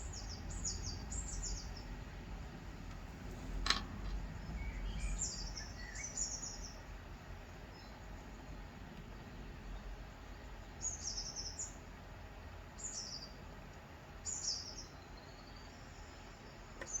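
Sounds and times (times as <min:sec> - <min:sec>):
bird chirping: 0:00.0 - 0:02.0, 0:04.2 - 0:06.9, 0:10.7 - 0:11.8, 0:14.2 - 0:17.0
low hum: 0:00.0 - 0:10.8.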